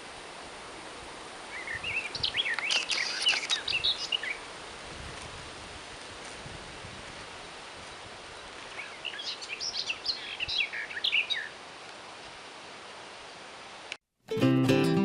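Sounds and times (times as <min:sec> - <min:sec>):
steady outdoor hiss: 0:00.0 - 0:15.0
songbird chirps and trills: 0:01.5 - 0:04.4, 0:08.4 - 0:11.6.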